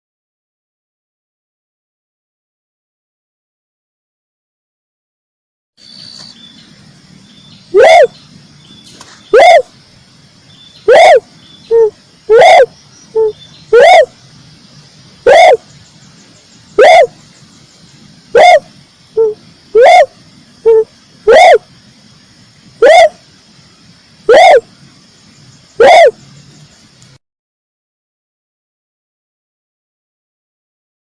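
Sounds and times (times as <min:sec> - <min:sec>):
dove cooing: 0:07.8 - 0:08.2, 0:09.3 - 0:09.7, 0:10.8 - 0:14.1, 0:15.2 - 0:15.7, 0:16.8 - 0:17.2, 0:18.3 - 0:21.7, 0:22.8 - 0:23.2, 0:24.3 - 0:24.7, 0:25.8 - 0:26.2.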